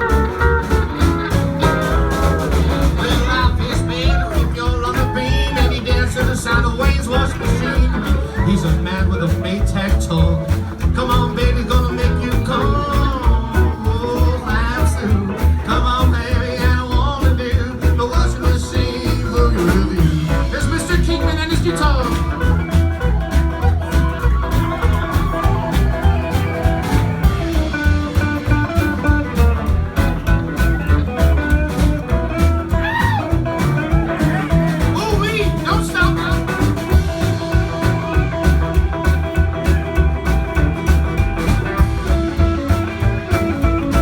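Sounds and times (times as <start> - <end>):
lead guitar with bending notes: 0.0 - 44.0
live rockabilly band playing: 0.0 - 44.0.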